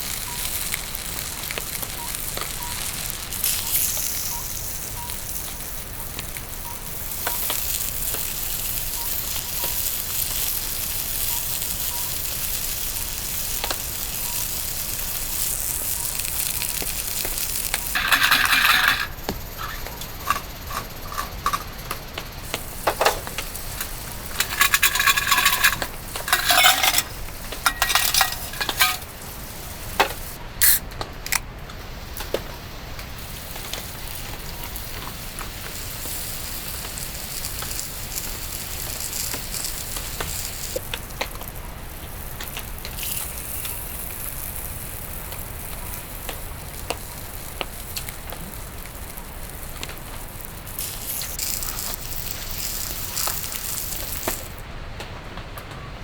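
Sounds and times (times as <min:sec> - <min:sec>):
food sizzling in a pan: 0:00.0 - 0:30.9, 0:31.7 - 0:54.7
clattering handling: 0:17.9 - 0:21.9, 0:22.5 - 0:29.2.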